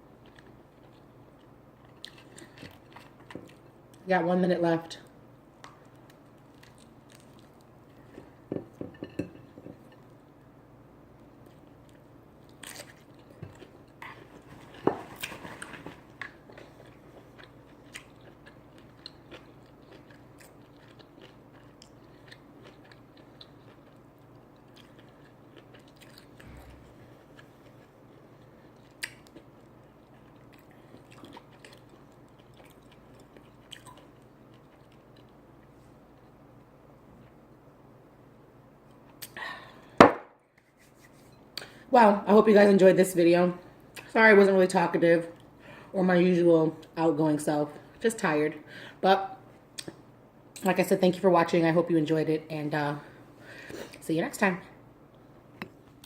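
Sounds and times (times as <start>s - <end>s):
person chewing and crunching food: 0.0s - 4.0s, 5.6s - 8.5s, 11.2s - 36.5s.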